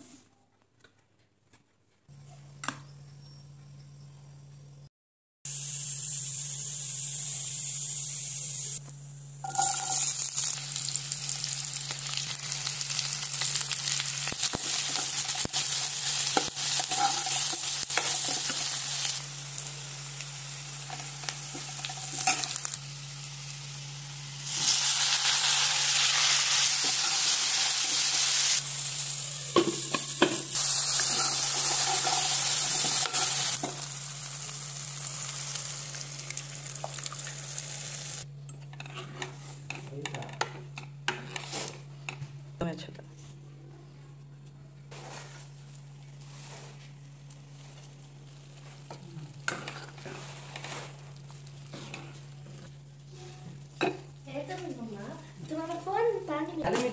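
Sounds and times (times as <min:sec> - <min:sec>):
food sizzling in hot oil: 0:05.5 - 0:08.8, 0:09.4 - 0:38.3.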